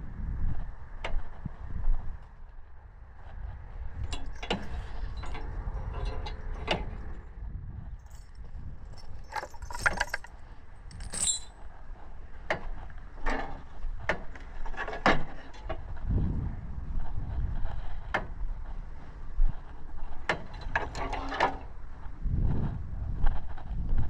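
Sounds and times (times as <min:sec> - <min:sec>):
irregular clicks and rattles: 0:08.0 - 0:11.5
tractor engine rumbling: 0:08.1 - 0:10.3.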